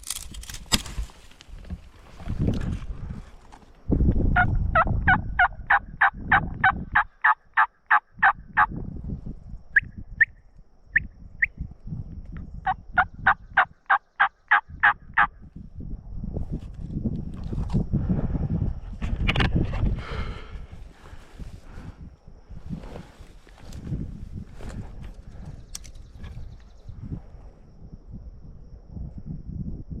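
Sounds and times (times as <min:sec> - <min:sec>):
rustling and movement: 0:00.0 - 0:03.9, 0:20.7 - 0:27.2
turkey yelps: 0:04.4 - 0:08.0.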